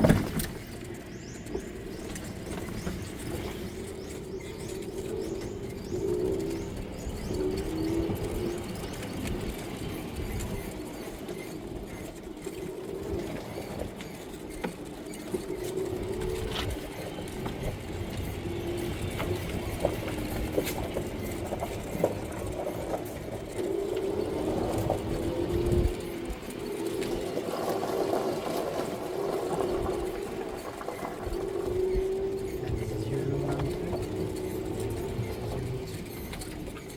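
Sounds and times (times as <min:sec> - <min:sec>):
doves cooing: 0:00.0 - 0:36.9.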